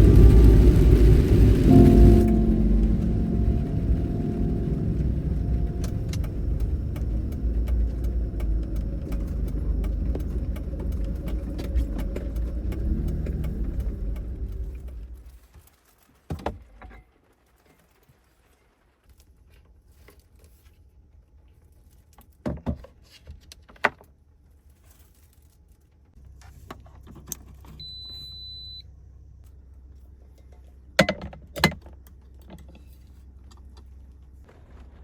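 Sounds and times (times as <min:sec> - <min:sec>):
low steady hum: 0:00.0 - 0:15.4
beep: 0:27.8 - 0:28.8.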